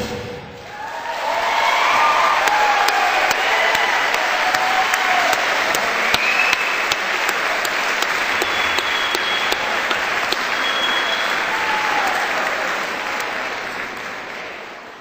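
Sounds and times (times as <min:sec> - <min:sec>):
audience applauding: 0:00.7 - 0:15.0
short whistles: 0:06.1 - 0:07.0, 0:08.4 - 0:09.6, 0:10.4 - 0:11.5.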